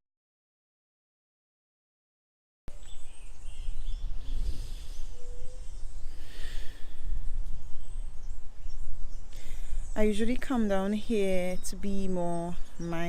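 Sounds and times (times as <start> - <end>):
bird chirps: 2.7 - 13.0
wind buffeting microphone: 2.7 - 13.0.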